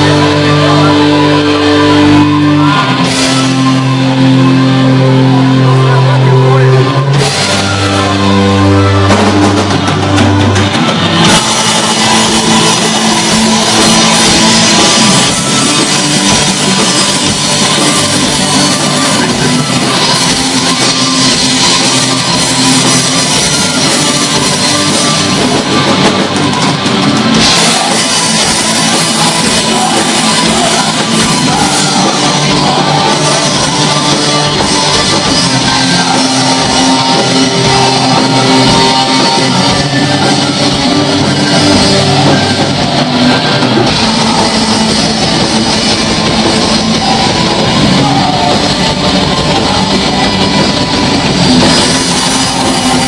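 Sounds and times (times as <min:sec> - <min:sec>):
distorted guitars: 0:00.0 - 0:53.0
drums: 0:00.0 - 0:53.0.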